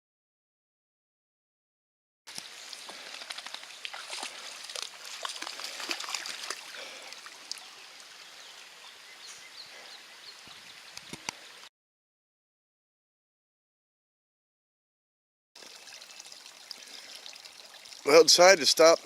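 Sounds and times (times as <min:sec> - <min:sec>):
small clicks and splashes: 0:02.3 - 0:08.1, 0:15.6 - 0:18.2
shallow water trickling: 0:02.3 - 0:11.7, 0:15.6 - 0:19.0.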